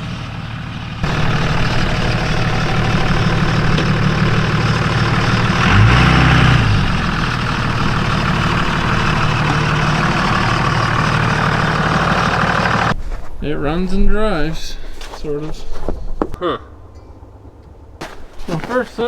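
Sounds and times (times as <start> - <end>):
pickup truck engine running: 0.0 - 13.0.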